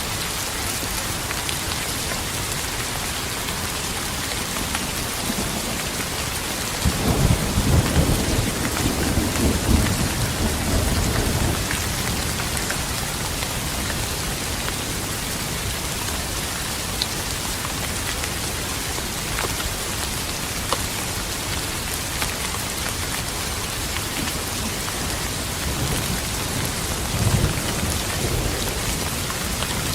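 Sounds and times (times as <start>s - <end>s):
heavy rain hissing: 0.0s - 29.9s
thunder rumbling: 6.8s - 13.8s, 25.0s - 29.9s.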